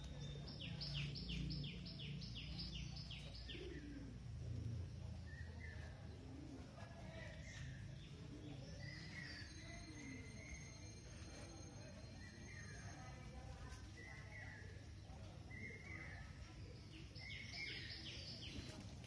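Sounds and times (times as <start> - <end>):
songbird singing whistled notes: 0.0 - 3.8, 7.4 - 13.4, 14.0 - 18.7
bird chirps: 7.3 - 13.4.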